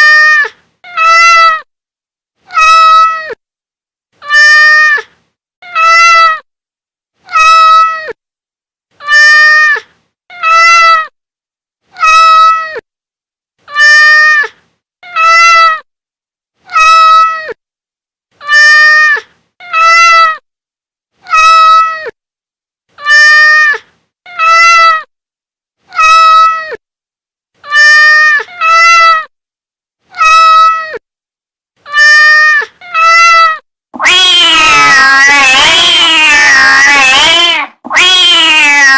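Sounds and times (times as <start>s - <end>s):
cat meowing: 0.0s - 1.6s, 2.5s - 3.4s, 4.2s - 5.0s, 5.6s - 6.4s, 7.3s - 8.2s, 9.0s - 11.1s, 12.0s - 12.8s, 15.0s - 15.8s, 16.7s - 17.6s, 18.4s - 20.4s, 21.2s - 22.1s, 23.0s - 25.1s, 25.9s - 26.8s, 27.6s - 29.3s, 30.1s - 31.0s, 31.9s - 38.9s
cat yowling: 0.0s - 1.6s, 2.5s - 3.4s, 4.2s - 5.0s, 5.6s - 6.4s, 7.3s - 8.2s, 9.0s - 9.8s, 10.4s - 11.1s, 12.0s - 12.8s, 13.7s - 14.5s, 15.2s - 15.8s, 16.7s - 17.6s, 18.4s - 20.4s, 21.2s - 22.1s, 23.0s - 23.8s, 24.4s - 25.1s, 25.9s - 26.8s, 27.6s - 29.3s, 30.1s - 31.0s, 31.9s - 38.9s.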